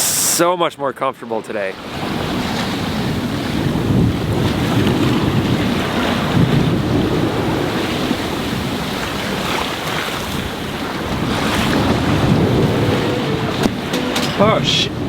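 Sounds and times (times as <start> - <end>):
waves rushing along hull: 1.7 - 15.0
wind buffeting microphone: 2.0 - 9.1.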